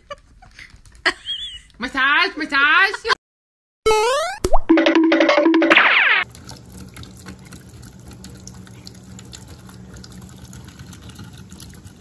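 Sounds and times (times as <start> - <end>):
cat lapping water splashes: 6.2 - 12.0.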